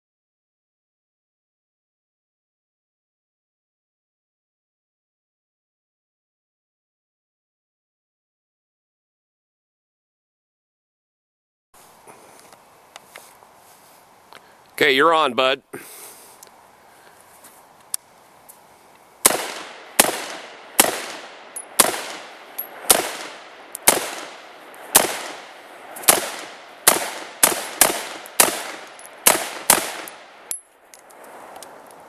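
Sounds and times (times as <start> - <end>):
gunshots with echo: 19.2 - 30.5.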